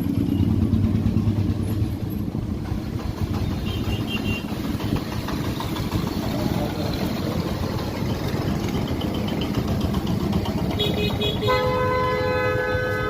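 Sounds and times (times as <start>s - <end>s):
road traffic: 0.0s - 13.0s
vehicle horn long honk: 3.6s - 4.6s, 10.7s - 13.0s.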